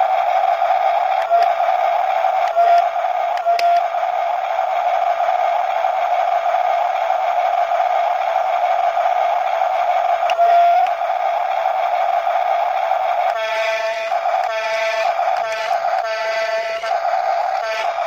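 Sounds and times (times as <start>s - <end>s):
small electric motor whine: 0.0s - 4.6s, 10.2s - 11.1s, 13.0s - 18.0s.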